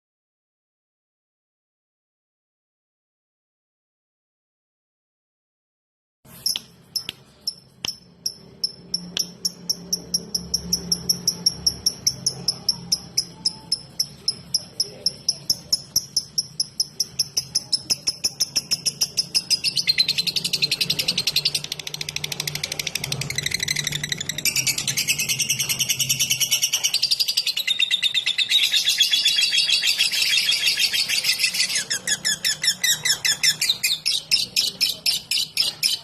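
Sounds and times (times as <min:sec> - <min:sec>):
lovebird ticking chatter: 0:06.4 - 0:36.0.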